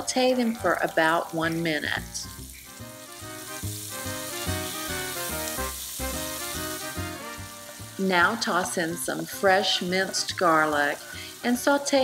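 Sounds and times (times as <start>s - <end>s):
background music: 0.0s - 12.0s
onions sizzling in a skillet: 0.0s - 12.0s.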